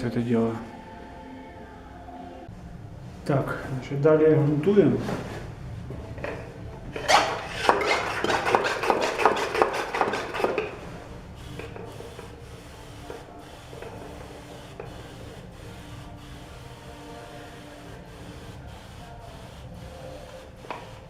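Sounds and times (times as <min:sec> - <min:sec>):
brush scraping on stone: 0:07.0 - 0:10.7.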